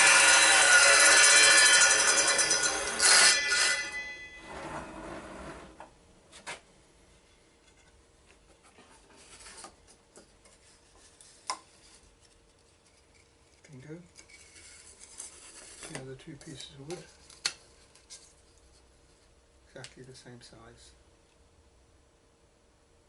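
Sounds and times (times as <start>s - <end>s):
table saw winding down: 0.0s - 5.3s.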